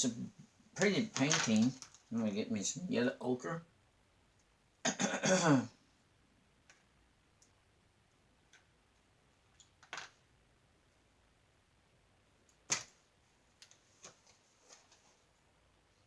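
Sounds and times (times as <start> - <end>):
light clicks and taps of brushes: 0.8 - 2.1.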